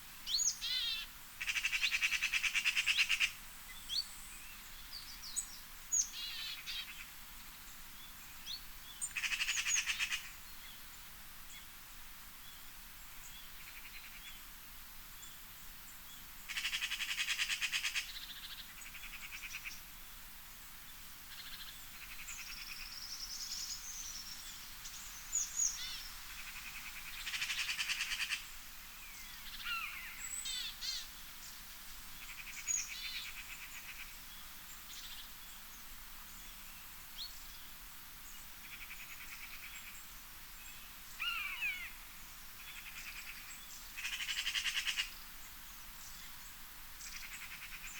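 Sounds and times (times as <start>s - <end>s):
birds singing fast trills: 0.3s - 7.1s, 8.0s - 10.8s, 21.3s - 31.6s, 32.2s - 47.9s.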